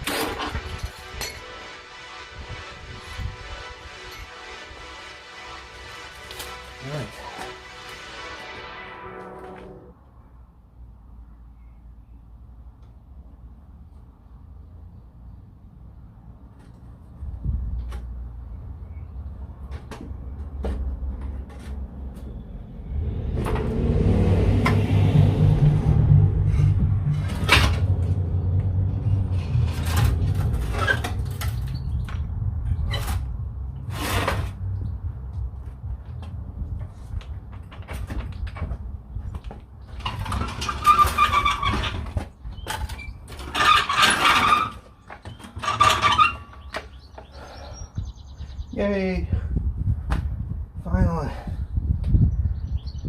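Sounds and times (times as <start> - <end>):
steady low hum: 22.4 - 30.8.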